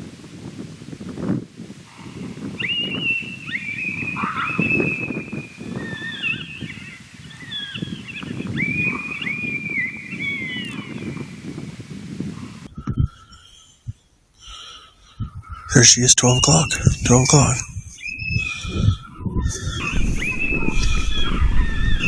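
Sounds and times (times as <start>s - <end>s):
wind rumbling on microphone: 0.0s - 22.0s
high-pitched whining animal calls: 2.0s - 6.8s, 17.8s - 22.0s.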